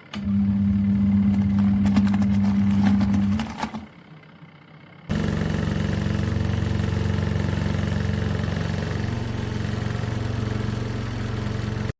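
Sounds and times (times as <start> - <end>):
washing machine motor humming: 0.0 - 4.0.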